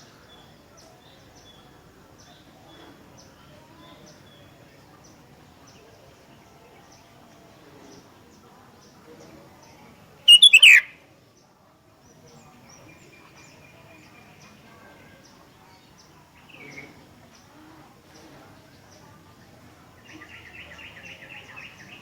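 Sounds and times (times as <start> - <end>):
bird calling: 10.3 - 11.0.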